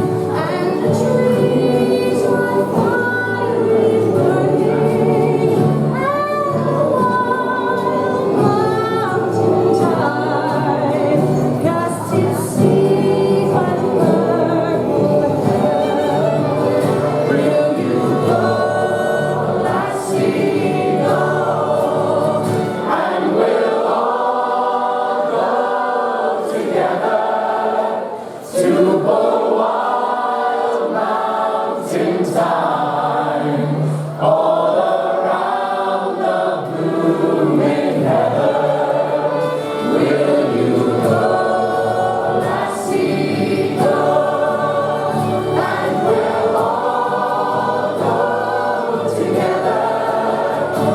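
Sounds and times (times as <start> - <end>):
choir singing: 0.0 - 50.9.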